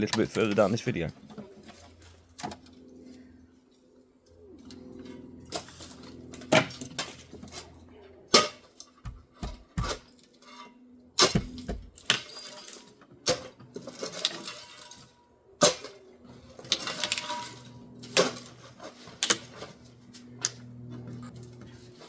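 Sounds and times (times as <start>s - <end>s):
debris clattering: 11.2s - 16.0s, 16.6s - 19.6s
shovel scraping across floor: 12.3s - 16.0s, 16.7s - 20.0s.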